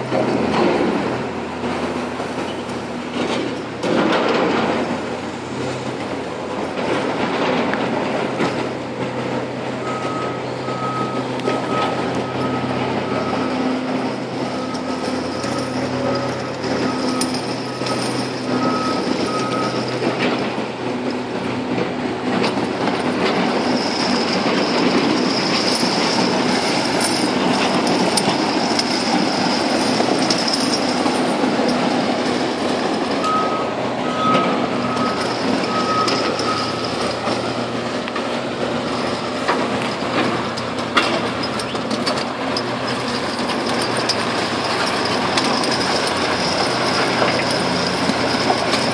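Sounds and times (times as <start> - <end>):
heavy machine engine under load: 0.0 - 48.9
reversing alarm beeping: 9.8 - 20.3, 33.1 - 37.6
rough rattling: 12.4 - 33.2, 34.8 - 48.9.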